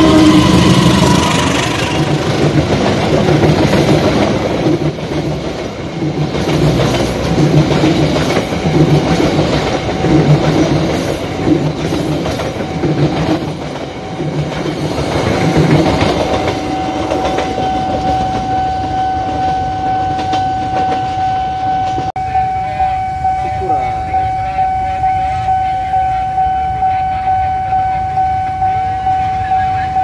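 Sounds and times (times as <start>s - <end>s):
steady high tone: 0.0s - 3.0s, 13.8s - 30.0s
train wheels clattering over rail joints: 0.1s - 18.5s.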